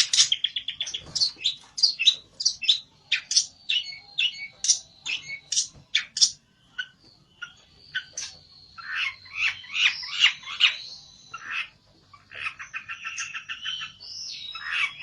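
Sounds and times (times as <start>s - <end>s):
songbird chirping and trilling: 0.0s - 15.0s.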